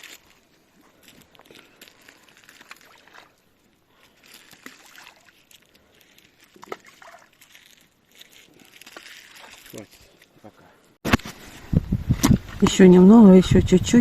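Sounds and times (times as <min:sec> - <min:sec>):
water sloshing and splashing: 0:00.0 - 0:10.5.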